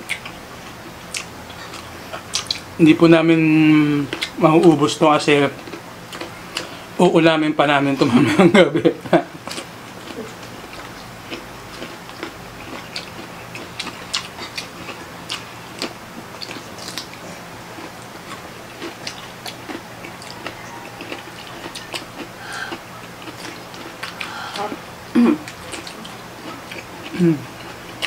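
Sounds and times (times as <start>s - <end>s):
wet mouth clicks: 1.1s - 2.7s
crunchy cucumber bites and chewing: 9.5s - 17.2s, 17.8s - 24.3s.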